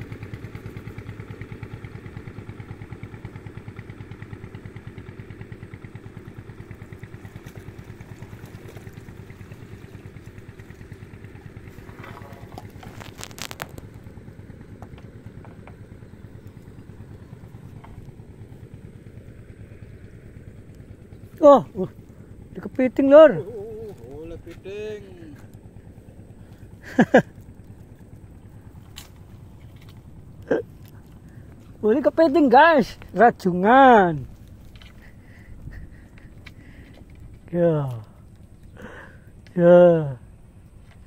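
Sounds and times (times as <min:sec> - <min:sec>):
small engine running: 0:00.0 - 0:41.0
sharp clicks and clatter: 0:11.9 - 0:14.2.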